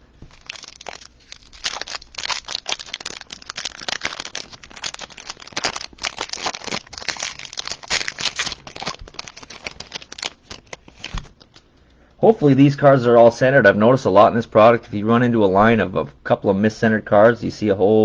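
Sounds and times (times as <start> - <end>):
foil wrapper crinkling and tearing: 0.2 - 11.6
cards being handled: 0.2 - 11.7.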